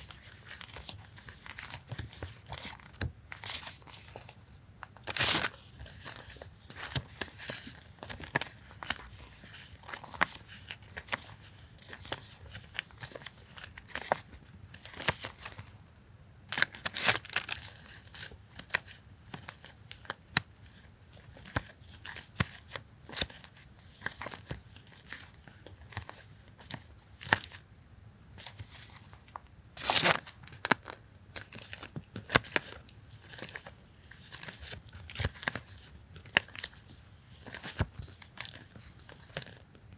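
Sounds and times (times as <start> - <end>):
paper crinkling rustles: 28.4 - 39.7.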